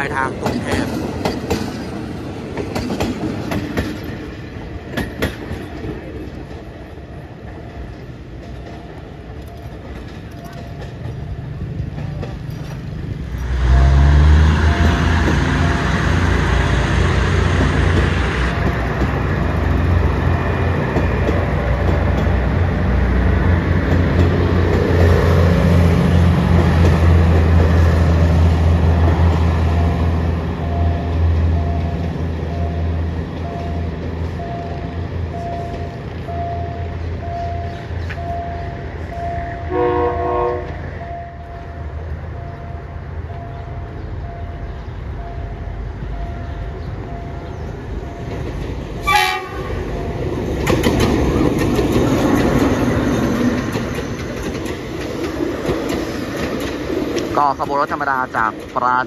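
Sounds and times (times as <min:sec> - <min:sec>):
train engine rumble: 0:00.0 - 0:59.0
wheel and rail noise: 0:00.0 - 0:59.0
level crossing signal beeping: 0:29.6 - 0:39.9, 0:40.9 - 0:48.6
train horn: 0:39.7 - 0:40.9, 0:49.0 - 0:49.9.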